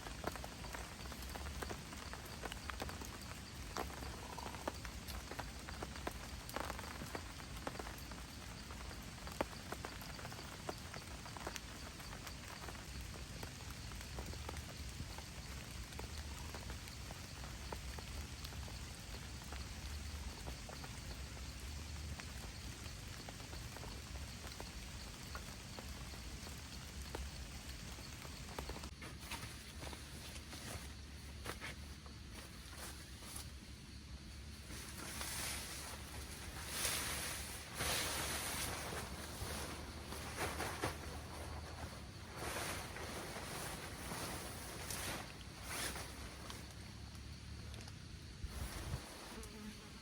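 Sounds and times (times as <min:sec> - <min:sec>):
raindrops ticking sharply: 0:00.0 - 0:29.0
steady rain falling: 0:00.0 - 0:50.0.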